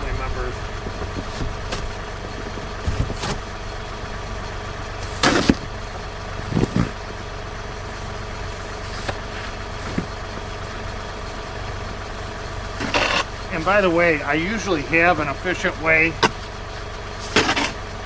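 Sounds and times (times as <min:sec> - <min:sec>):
steady engine hum: 0:00.0 - 0:18.0
snow shovel scraping snow: 0:05.0 - 0:05.5, 0:12.8 - 0:13.8, 0:17.2 - 0:17.8.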